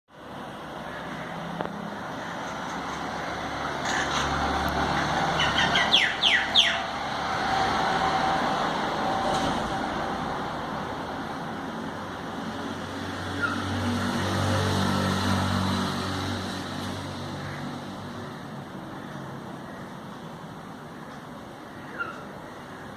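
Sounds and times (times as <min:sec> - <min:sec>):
traffic background noise: 0:00.1 - 0:22.9
mynas calling: 0:03.8 - 0:07.0, 0:21.6 - 0:22.9.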